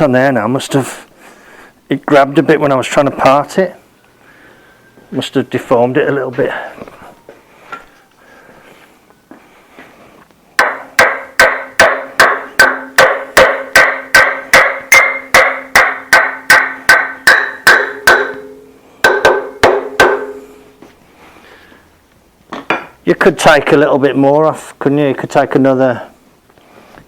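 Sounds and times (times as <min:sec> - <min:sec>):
hammer striking metal: 0:10.6 - 0:20.7.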